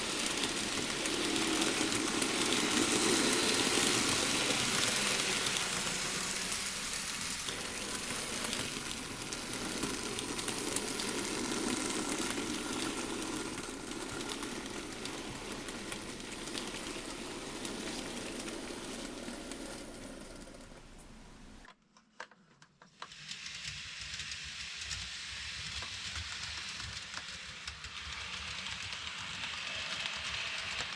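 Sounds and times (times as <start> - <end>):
model train motor and wheel rumble: 0.0 - 21.7, 22.8 - 30.9
rail joint clicks: 0.0 - 21.7.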